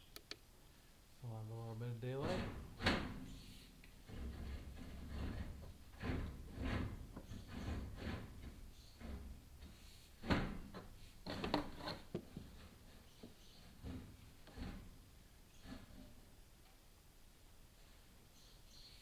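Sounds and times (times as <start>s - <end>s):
camera scraping against flue walls: 2.1s - 16.4s.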